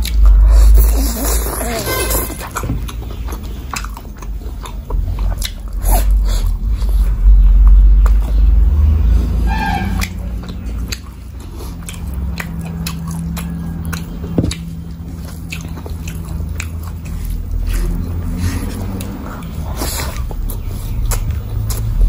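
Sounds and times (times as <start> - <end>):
close chewing: 0.0 - 22.0
steady low hum: 0.0 - 22.0
wet mouth clicks and smacks: 2.4 - 6.2, 10.0 - 22.0.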